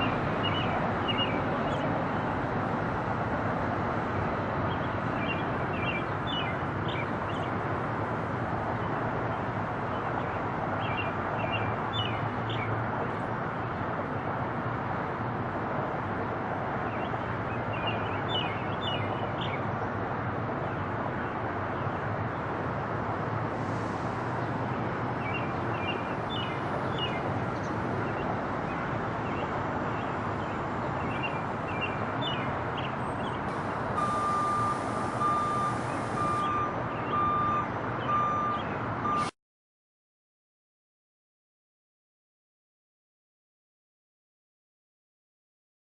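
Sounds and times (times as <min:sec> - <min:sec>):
birds chirping: 0:00.0 - 0:01.9, 0:04.7 - 0:07.6, 0:25.2 - 0:33.4
outdoor background rumble: 0:00.0 - 0:39.3
reversing beeper: 0:34.0 - 0:39.3.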